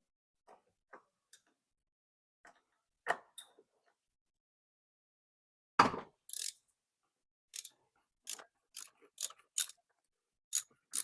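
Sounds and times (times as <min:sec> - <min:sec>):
ratchet wrench clicks: 0:06.3 - 0:06.6, 0:07.5 - 0:07.7, 0:08.3 - 0:09.8, 0:10.5 - 0:11.0.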